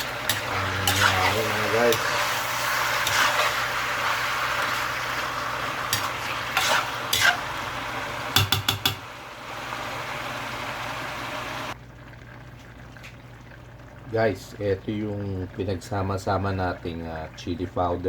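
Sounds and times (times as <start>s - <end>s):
chicken sizzling in a pan: 0.0s - 11.8s
utensil knocking against pan: 8.4s - 9.0s.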